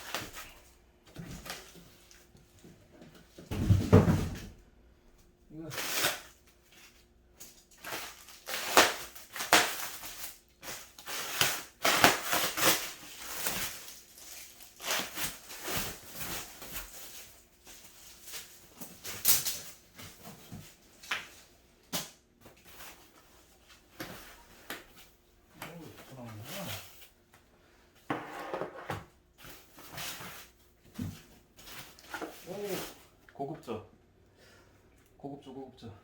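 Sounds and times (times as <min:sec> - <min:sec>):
packaging crackling and rustling: 0:07.4 - 0:21.3.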